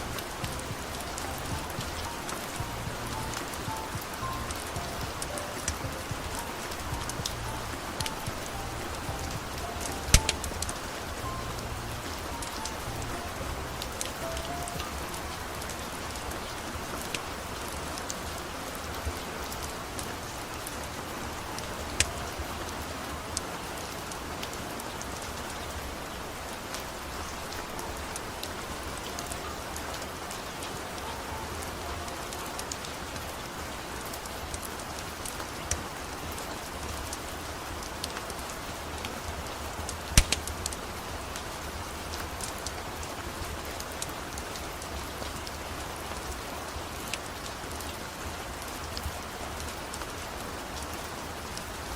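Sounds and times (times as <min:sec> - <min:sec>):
sharp clicks and drips: 0:00.0 - 0:33.4, 0:39.0 - 0:41.4
rain falling: 0:00.0 - 0:51.9.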